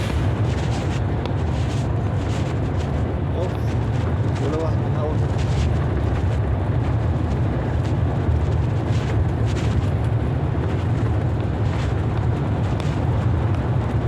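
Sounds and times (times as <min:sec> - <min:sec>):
thunder rolling: 0:00.0 - 0:03.3.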